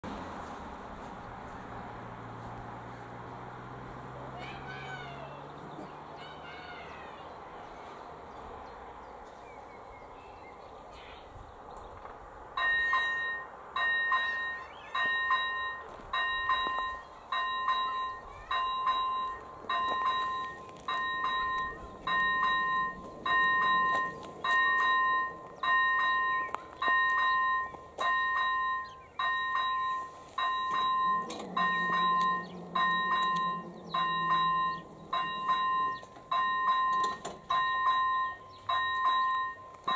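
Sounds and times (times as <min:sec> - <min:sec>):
level crossing warning bell: 0:12.6 - 0:39.9
low droning tone: 0:17.5 - 0:39.6.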